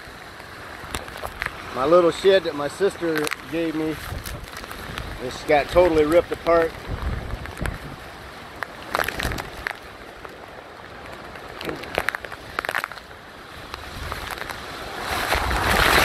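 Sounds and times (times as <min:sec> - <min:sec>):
heavy rain: 0:00.0 - 0:16.0
wind rumbling on microphone: 0:00.0 - 0:16.0
rain tapping on plastic case: 0:03.0 - 0:08.0, 0:08.6 - 0:13.1.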